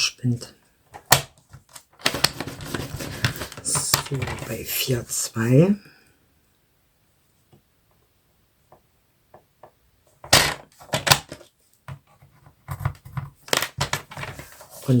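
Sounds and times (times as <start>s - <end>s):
paper scraping on table: 2.0s - 4.5s.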